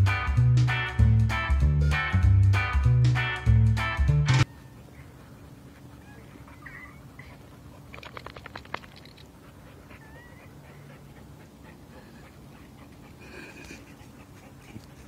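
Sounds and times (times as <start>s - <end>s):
music: 0.0s - 4.5s
dog whimpering: 4.5s - 7.5s, 9.7s - 12.1s
rapid clicks: 7.8s - 9.3s.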